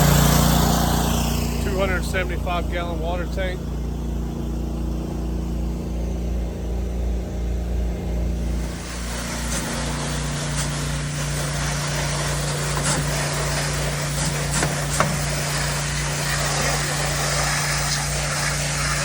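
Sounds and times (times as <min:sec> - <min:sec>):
water spraying hiss: 0:00.0 - 0:03.5, 0:08.4 - 0:19.0
pressure washer engine running: 0:00.0 - 0:19.0.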